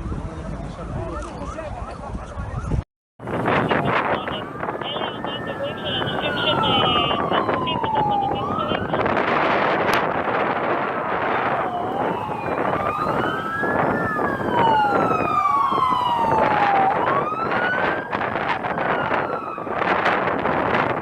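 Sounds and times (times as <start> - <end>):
emergency sirens wailing: 0.0 - 21.0
loud rushing background noise: 3.2 - 18.7.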